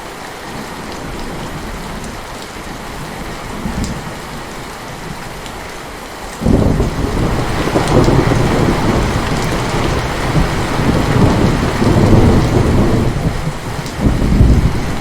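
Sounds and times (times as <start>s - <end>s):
steady rain: 0.0s - 15.0s
thunder rumbling: 6.4s - 15.0s.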